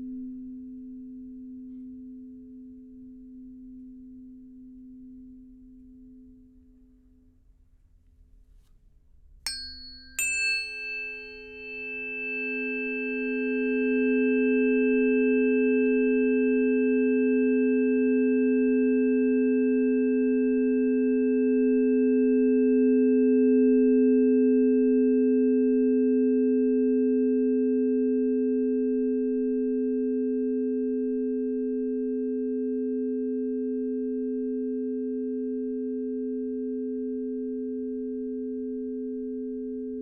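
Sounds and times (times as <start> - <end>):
sound bath instrument ringing: 9.5 - 15.6.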